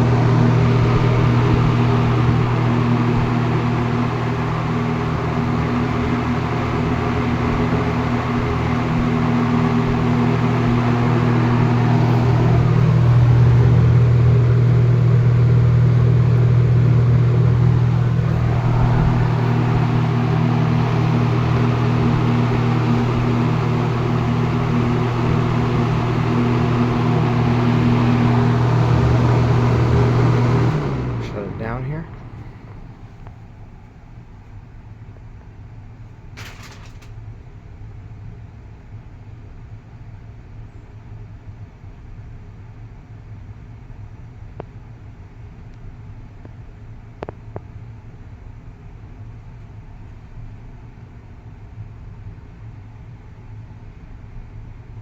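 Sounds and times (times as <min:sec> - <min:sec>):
air rushing from fan blades: 0:00.0 - 0:33.9, 0:36.4 - 0:37.2
fan motor hum: 0:00.0 - 0:37.5.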